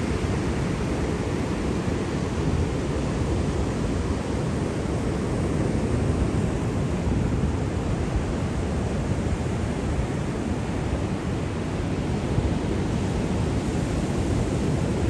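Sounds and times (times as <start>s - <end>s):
rush of surf: 0.0s - 15.0s.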